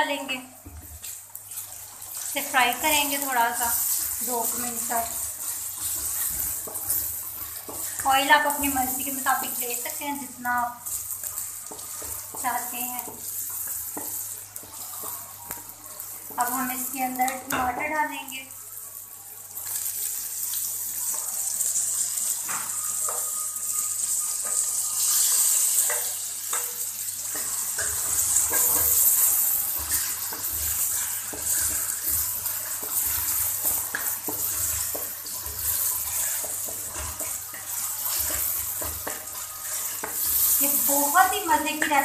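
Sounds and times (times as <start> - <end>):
tomatoes sizzling in hot oil: 0.0 - 42.0
wooden spatula scraping pan: 24.1 - 41.4.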